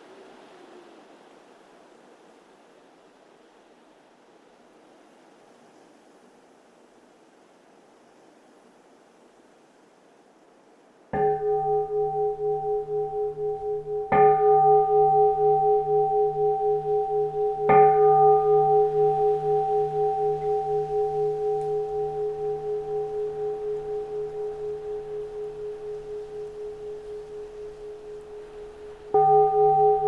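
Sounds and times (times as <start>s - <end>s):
bowl-shaped temple bell ringing: 11.2s - 30.0s.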